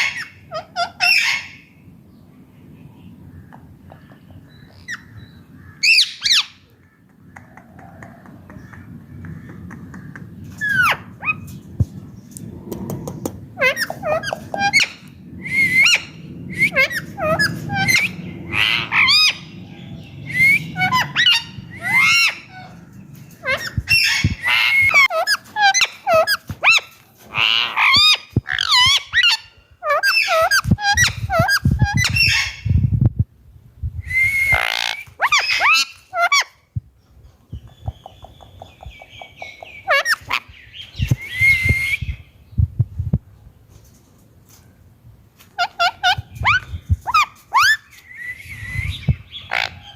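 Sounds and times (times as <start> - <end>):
parakeet squawking and whistling: 13.6 - 19.6, 20.2 - 22.6, 34.1 - 36.5, 45.6 - 49.9.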